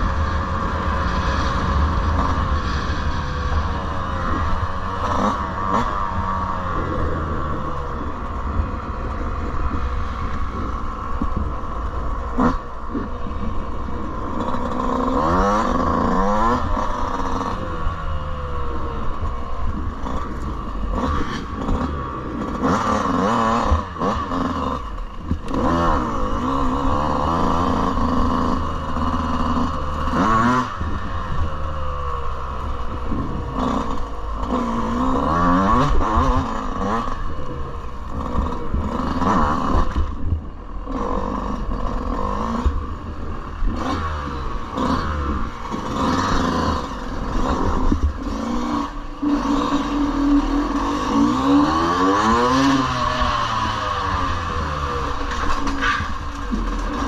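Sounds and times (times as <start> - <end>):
dirt bike engine revving: 0.0 - 57.0
clattering and scraping: 55.1 - 57.0.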